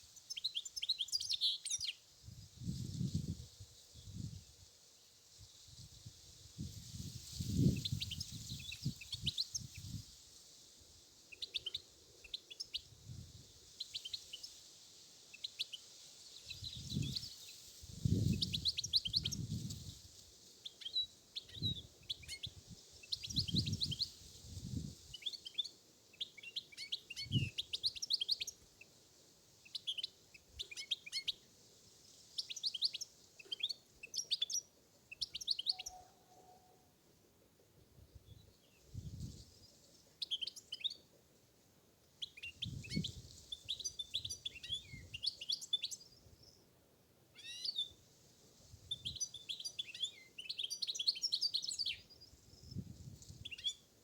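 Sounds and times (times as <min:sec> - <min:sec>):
wind buffeting microphone: 0:06.6 - 0:10.0, 0:42.6 - 0:43.2
finch twittering song: 0:47.4 - 0:47.9.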